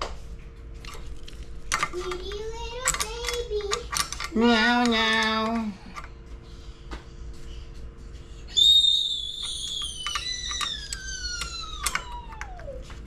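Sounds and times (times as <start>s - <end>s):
small clicks and knocks: 0.8s - 6.2s, 9.4s - 13.0s
high whistle-like squeal: 8.5s - 11.4s.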